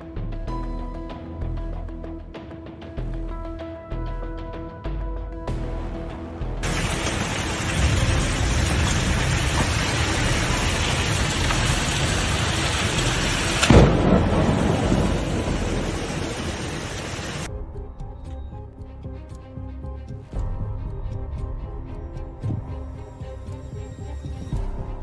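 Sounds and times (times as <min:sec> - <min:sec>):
close thunderclap rumbling: 0:06.6 - 0:17.5
heavy rain pouring: 0:06.6 - 0:17.5.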